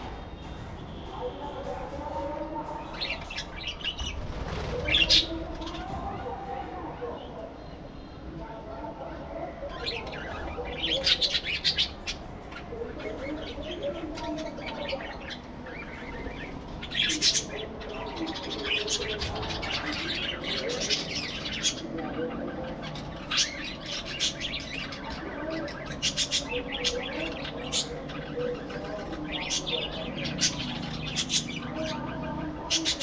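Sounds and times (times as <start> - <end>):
budgerigars chirping and squawking: 9.8 - 33.0.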